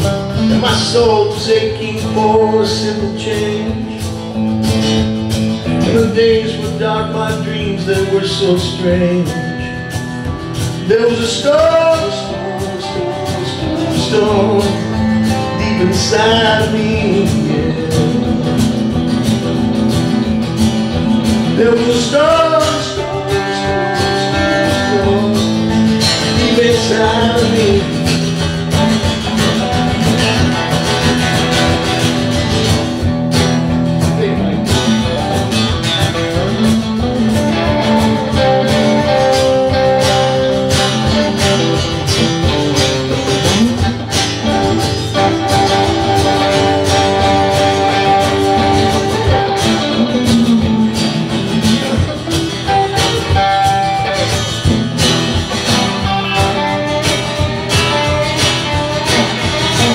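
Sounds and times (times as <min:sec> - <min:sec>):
live band instrumental: 0:00.0 - 0:59.9
strummed guitar: 0:00.0 - 0:59.9.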